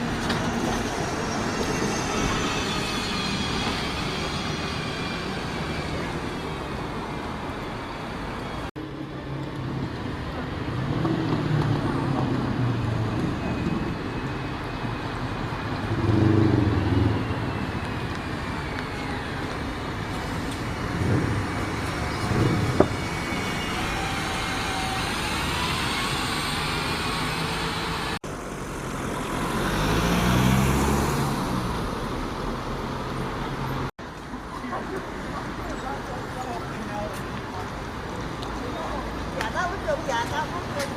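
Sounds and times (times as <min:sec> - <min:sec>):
steady traffic rumble: 0:00.0 - 0:40.9
vehicles driving past: 0:08.8 - 0:40.9.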